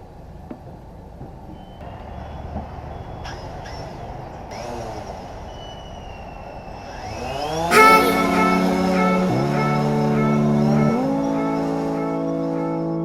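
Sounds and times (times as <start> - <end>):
short rising tone: 7.7 - 11.0.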